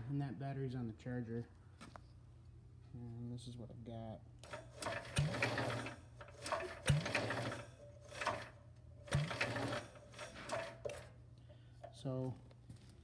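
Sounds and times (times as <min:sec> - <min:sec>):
starter cranking engine: 0:04.4 - 0:11.2.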